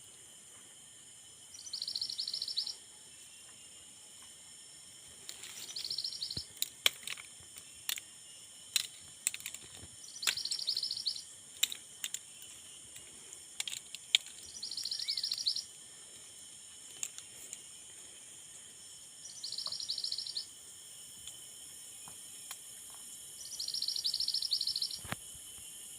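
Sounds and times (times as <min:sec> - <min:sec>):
high insect-like hiss: 0:00.0 - 0:25.9
songbird trilling: 0:01.5 - 0:02.8, 0:05.6 - 0:06.5, 0:10.0 - 0:11.3, 0:14.4 - 0:15.7, 0:19.2 - 0:20.5, 0:23.4 - 0:25.1.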